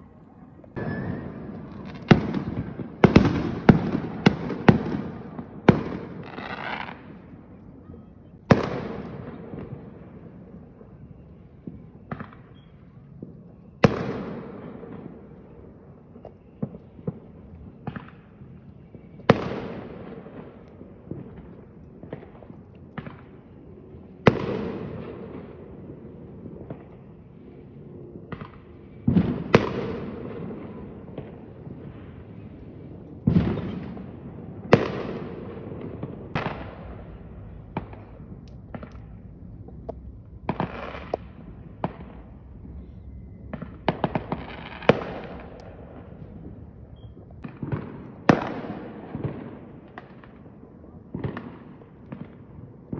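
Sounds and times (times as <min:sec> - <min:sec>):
fireworks pops and crackles: 0:00.0 - 0:52.9
fireworks bangs: 0:00.6 - 0:52.9.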